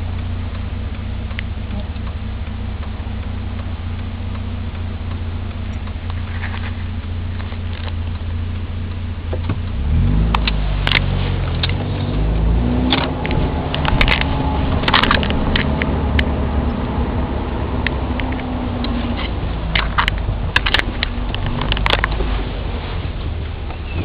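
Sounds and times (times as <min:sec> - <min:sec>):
car engine accelerating: 0:00.0 - 0:24.0
clicks and rattles: 0:05.7 - 0:08.2, 0:10.3 - 0:12.2, 0:12.8 - 0:16.8, 0:17.8 - 0:22.4.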